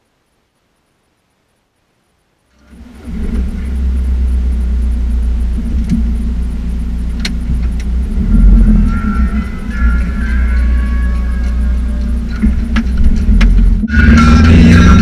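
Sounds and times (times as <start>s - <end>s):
car engine rumble inside cabin: 2.6s - 15.0s
sharp clicks: 7.1s - 7.9s.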